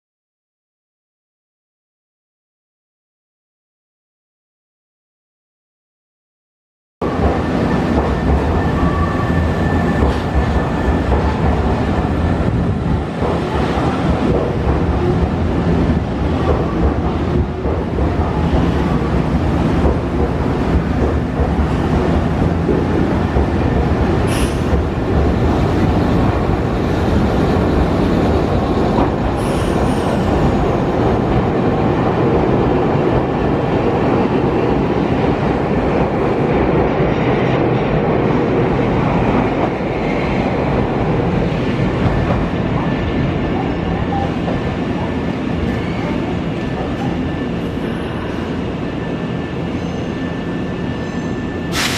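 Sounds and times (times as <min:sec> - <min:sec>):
train squealing: 0:07.1 - 0:12.3, 0:29.3 - 0:30.9, 0:45.6 - 0:51.9
electric train running slowly: 0:40.7 - 0:51.9.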